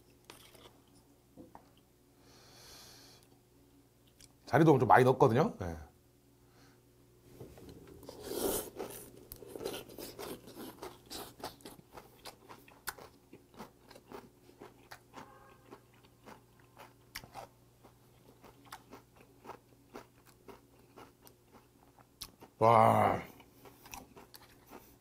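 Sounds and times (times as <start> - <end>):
crunchy chewing of raw fish: 0.2 - 1.0, 7.6 - 25.0.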